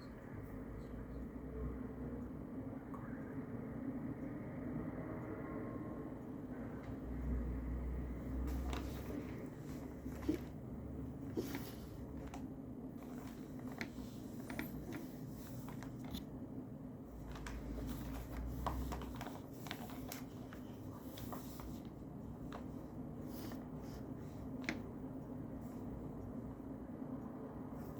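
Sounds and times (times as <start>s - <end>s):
steady low hum: 0.0s - 27.9s
paper rustling: 8.5s - 10.6s, 11.2s - 16.3s, 17.1s - 24.8s.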